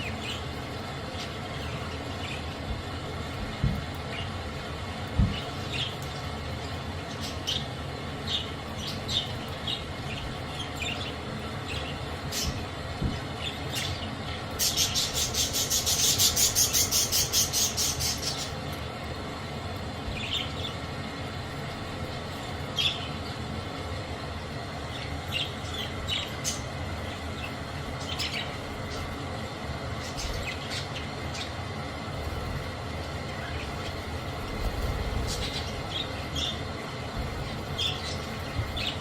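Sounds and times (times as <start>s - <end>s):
budgies chirping: 8.3s - 18.6s, 24.9s - 29.2s, 30.0s - 31.6s, 33.3s - 36.6s, 37.4s - 39.0s
harsh chattering calls: 14.6s - 18.6s.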